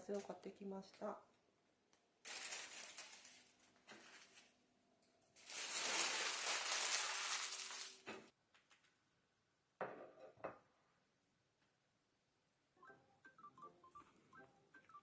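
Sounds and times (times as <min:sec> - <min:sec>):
plastic packaging crinkling: 0:02.3 - 0:04.5, 0:05.4 - 0:08.3.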